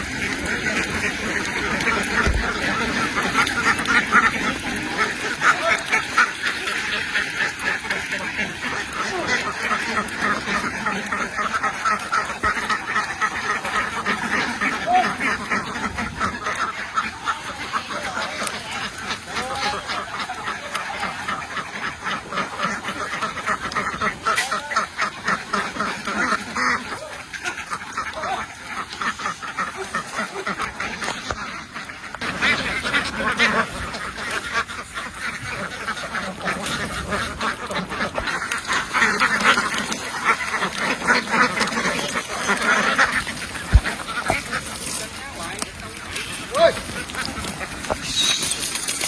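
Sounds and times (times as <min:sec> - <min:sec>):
ducks quacking: 0:00.0 - 0:49.0.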